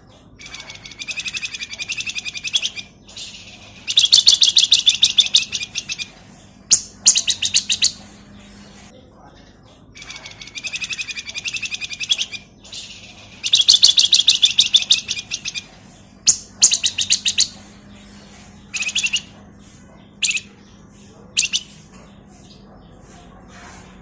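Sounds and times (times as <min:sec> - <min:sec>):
songbird high-pitched trills: 0:00.4 - 0:08.2, 0:10.0 - 0:19.4, 0:20.1 - 0:20.7, 0:21.4 - 0:21.8.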